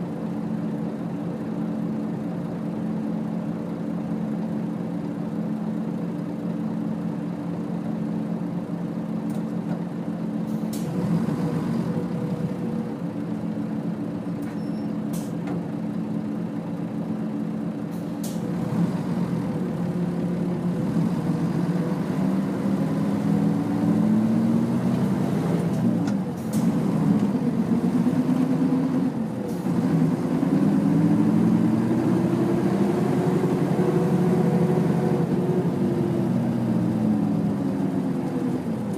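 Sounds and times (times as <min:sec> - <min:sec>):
bus diesel engine: 0:00.0 - 0:38.9.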